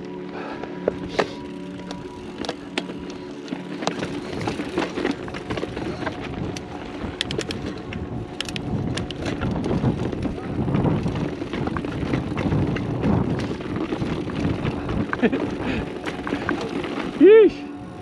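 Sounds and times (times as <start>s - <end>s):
background music: 0.0s - 9.2s
bike clicks and rattles: 0.0s - 18.0s
bike tyres rumbling on dirt: 0.0s - 18.0s
wind on microphone: 4.1s - 18.0s.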